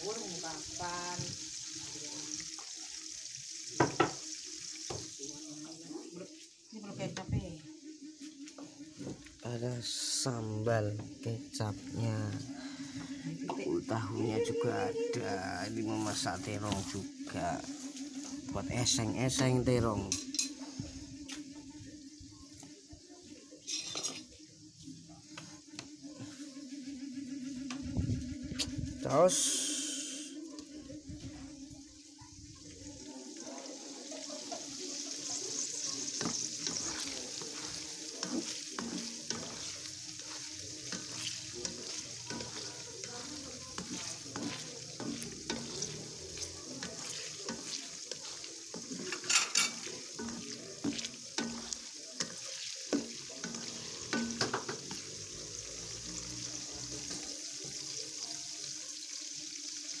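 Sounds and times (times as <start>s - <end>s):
tofu deep-frying in hot oil: 0.0s - 6.8s, 32.5s - 60.0s.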